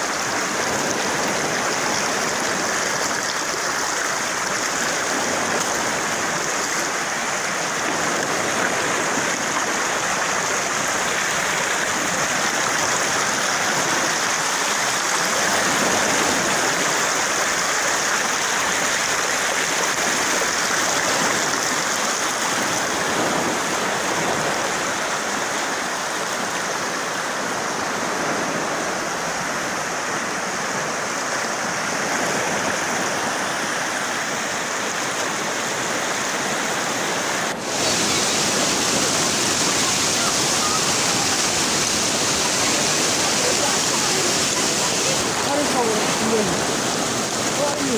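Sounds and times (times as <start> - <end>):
water rushing over rocks: 0.0 - 47.9.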